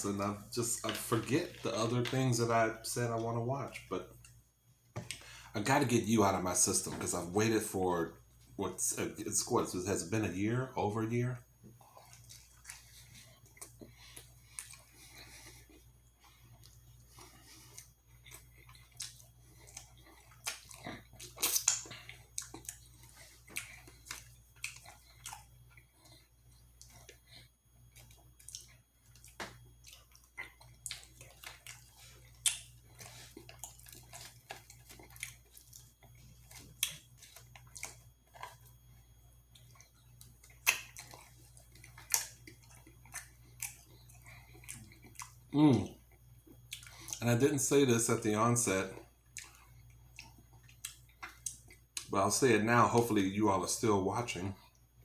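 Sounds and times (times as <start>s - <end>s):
faint low hum: 0.0s - 55.0s
person chewing: 11.6s - 47.4s, 48.9s - 52.1s.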